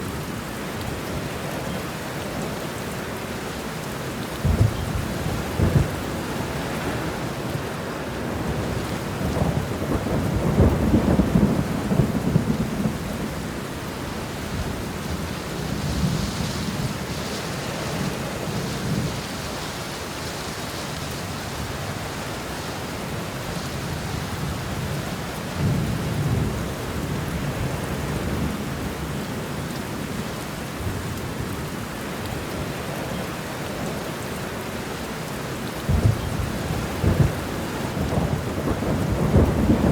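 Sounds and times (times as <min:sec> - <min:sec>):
steady rain: 0:00.0 - 0:39.9
thunder rumbling: 0:04.4 - 0:07.6, 0:08.2 - 0:19.4, 0:35.8 - 0:39.9.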